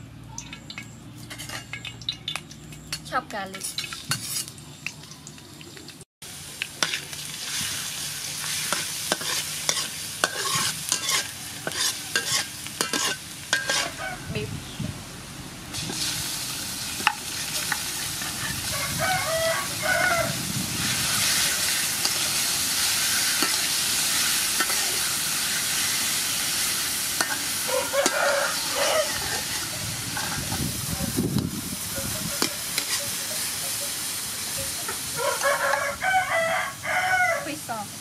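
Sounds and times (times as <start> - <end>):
metal spatula scraping a wok: 1.2 - 1.8, 3.6 - 4.6, 8.4 - 14.0, 17.0 - 18.7, 20.7 - 30.7, 32.0 - 33.7
beef sizzling in hot oil: 3.6 - 14.0, 15.7 - 36.4
rooster crowing: 11.2 - 12.2, 13.7 - 14.4, 18.4 - 20.5, 27.5 - 29.7, 35.1 - 37.6.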